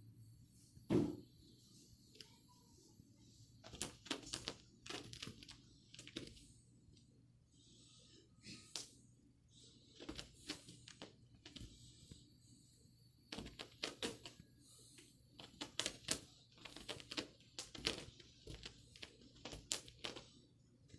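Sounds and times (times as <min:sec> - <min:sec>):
cat paws tapping and scrabbling: 0:03.6 - 0:06.5, 0:09.9 - 0:11.8, 0:13.3 - 0:14.4, 0:15.4 - 0:20.4.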